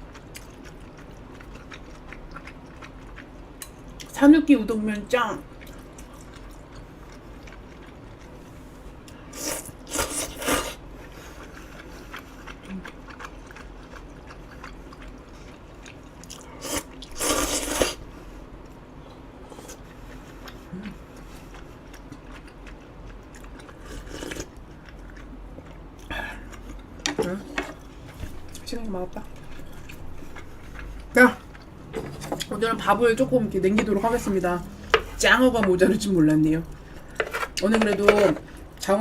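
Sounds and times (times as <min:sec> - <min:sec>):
person chewing: 0:00.0 - 0:04.2, 0:05.4 - 0:32.5.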